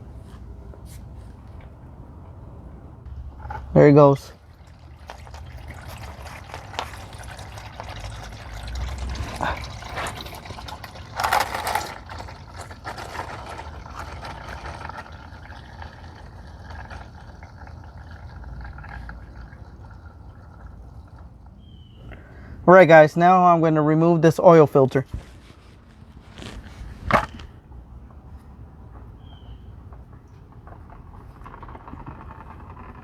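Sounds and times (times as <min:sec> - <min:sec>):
oil pouring into a pan: 0:03.4 - 0:11.3, 0:11.9 - 0:21.5.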